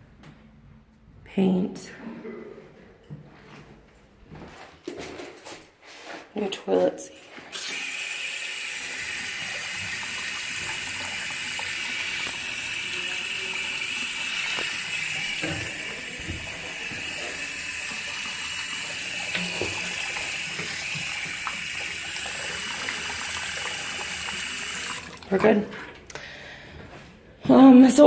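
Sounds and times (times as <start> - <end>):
water running from faucet: 7.5 - 26.1.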